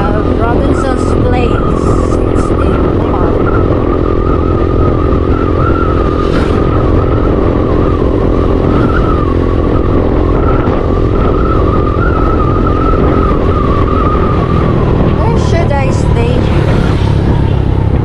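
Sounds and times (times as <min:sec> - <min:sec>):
thin wavering whine: 0:00.0 - 0:17.7
motorcycle engine hum: 0:00.0 - 0:18.0
wind rush on microphone: 0:00.0 - 0:18.0.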